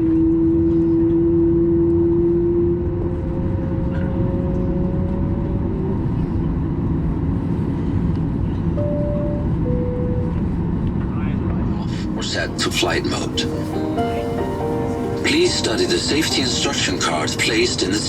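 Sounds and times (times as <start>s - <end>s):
aircraft cabin rumble: 11.8s - 18.0s.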